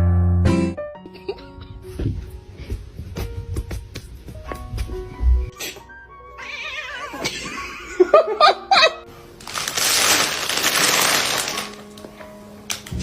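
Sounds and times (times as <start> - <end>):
cat meowing: 6.3 - 7.2.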